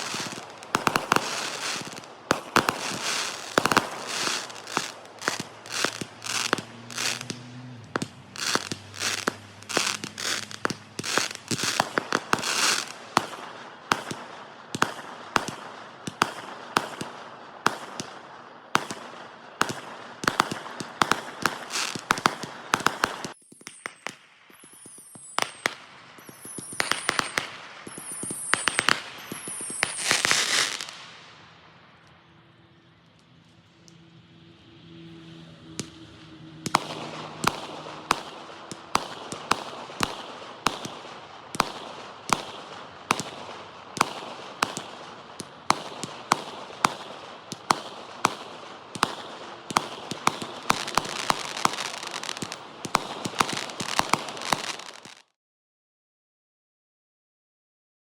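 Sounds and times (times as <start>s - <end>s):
fireworks whistles falling in pitch: 0.0s - 13.3s, 19.6s - 31.2s, 48.2s - 55.2s
fireworks bangs and crackling: 0.0s - 55.3s.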